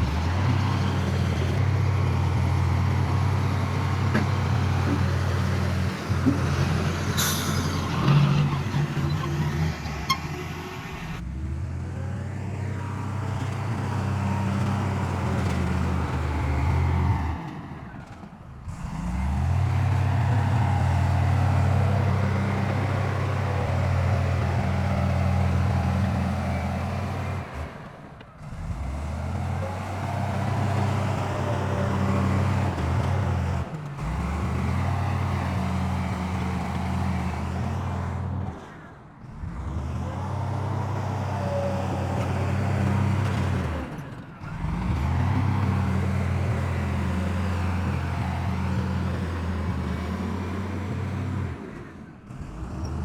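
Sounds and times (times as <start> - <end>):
heavy diesel machinery running: 0.0 - 53.0.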